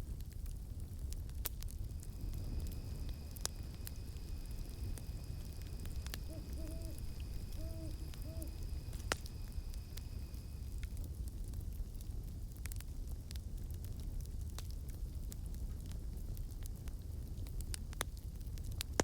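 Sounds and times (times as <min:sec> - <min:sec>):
campfire crackling: 0:00.0 - 0:19.0
insect drone: 0:01.7 - 0:11.4
owl hooting: 0:02.0 - 0:10.6.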